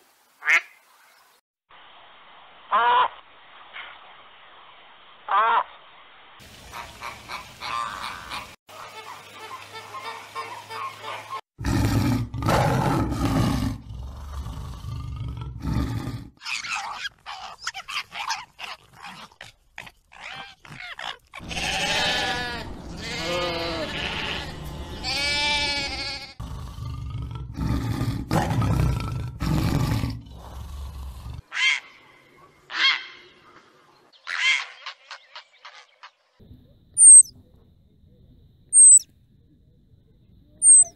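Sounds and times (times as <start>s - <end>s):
loud animal calls: 20.1s - 26.4s, 37.0s - 37.3s, 38.8s - 39.0s, 40.6s - 40.9s
sheep bleating: 21.4s - 26.4s
short animal calls: 37.0s - 37.3s, 38.8s - 39.0s, 40.6s - 40.9s.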